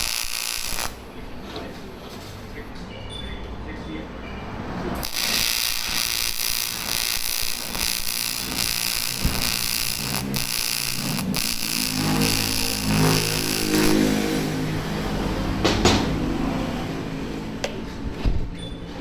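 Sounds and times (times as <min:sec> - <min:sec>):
welding arc buzzing: 0:00.0 - 0:01.1, 0:05.0 - 0:15.6
low droning hum: 0:05.2 - 0:17.6.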